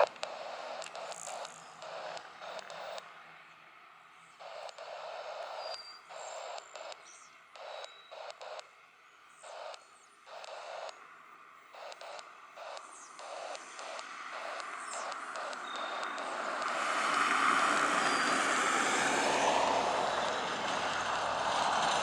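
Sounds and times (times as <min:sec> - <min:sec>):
high-pitched radio tones: 0:00.0 - 0:03.0, 0:09.4 - 0:22.0
radio static hiss bursts: 0:00.0 - 0:03.3, 0:04.3 - 0:22.0.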